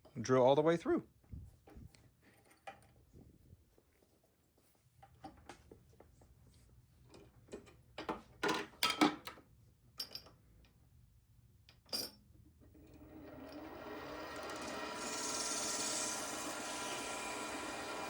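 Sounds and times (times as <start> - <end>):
metal lathe running: 13.2 - 18.0.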